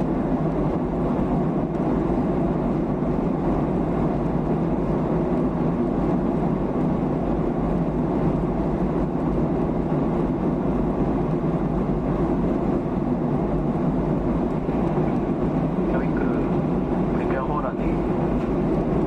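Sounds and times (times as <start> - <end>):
airplane cabin engine drone: 0.0 - 19.0.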